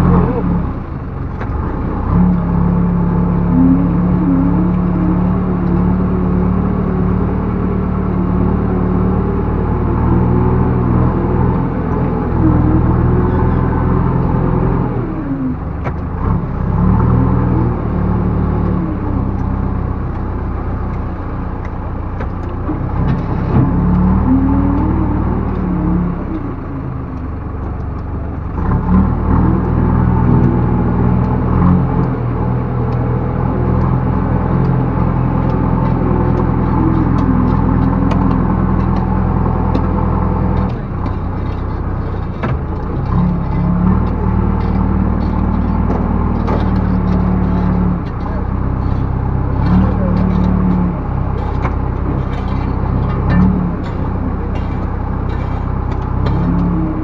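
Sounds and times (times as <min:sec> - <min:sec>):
backhoe diesel engine revving: 0:00.0 - 0:57.0.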